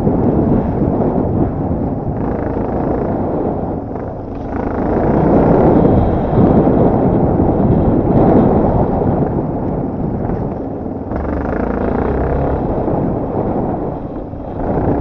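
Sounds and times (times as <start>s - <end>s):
wind buffeting microphone: 0.0s - 15.0s
dirt bike engine: 2.1s - 9.2s, 10.1s - 15.0s.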